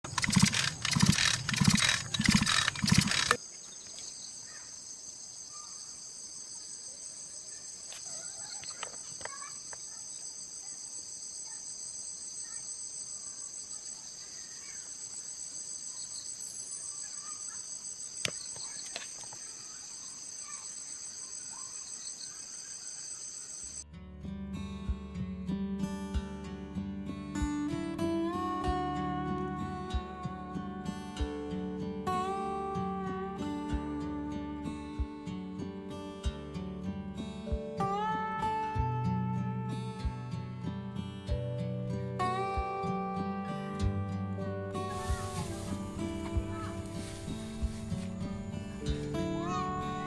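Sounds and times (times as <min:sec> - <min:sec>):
loud pulsing machine: 0:00.0 - 0:03.4
crickets trilling: 0:00.0 - 0:23.8, 0:44.9 - 0:50.0
faint clicks: 0:00.1 - 0:04.0
acoustic guitar music: 0:23.9 - 0:50.0.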